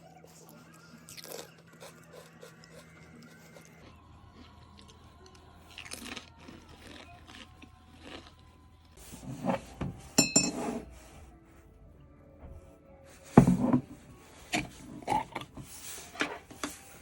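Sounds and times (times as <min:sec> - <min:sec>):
crunchy bites and chewing: 0:01.0 - 0:09.0.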